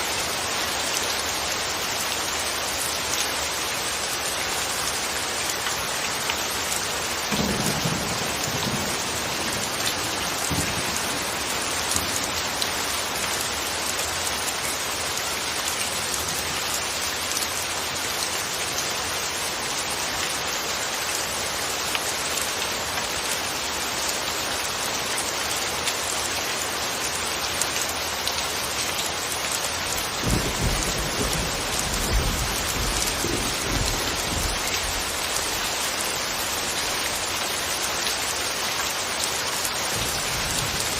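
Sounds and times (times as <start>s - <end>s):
steady rain falling: 0.0s - 40.9s
low rumble of thunder: 7.3s - 12.3s, 30.2s - 35.1s.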